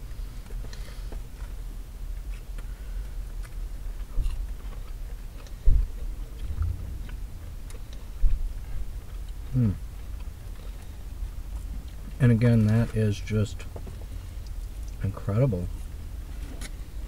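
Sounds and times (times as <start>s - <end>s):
person chewing food: 0.3s - 12.2s, 13.6s - 15.0s
low car cabin rumble: 5.6s - 17.0s
dull thump: 6.5s - 7.5s.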